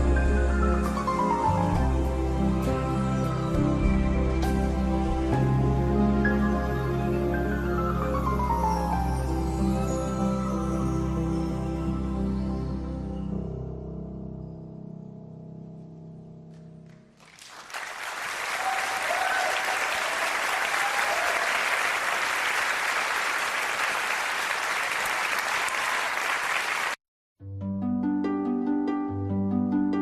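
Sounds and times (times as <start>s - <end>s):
audience applauding: 17.2s - 27.0s
instrumental music: 27.4s - 30.0s.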